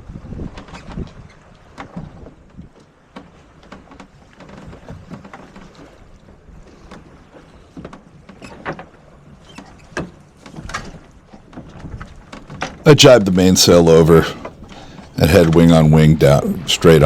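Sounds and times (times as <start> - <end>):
wind and water rushing: 0.0 - 17.0
rigging clicks and knocks: 11.6 - 12.9.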